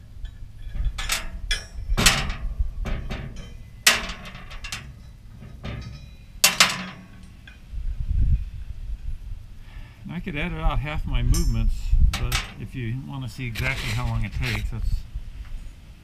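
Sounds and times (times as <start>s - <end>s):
metal parts knocking together: 0.2s - 7.6s, 12.2s - 12.6s.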